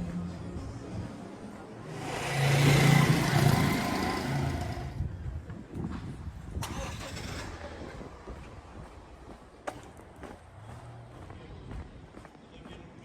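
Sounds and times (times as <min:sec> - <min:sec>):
vehicle passing by: 0:01.8 - 0:05.1.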